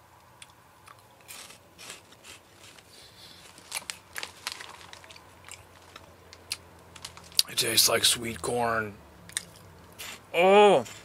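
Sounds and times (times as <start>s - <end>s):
crunchy snacks being chewed: 0.4s - 7.5s, 9.3s - 10.2s.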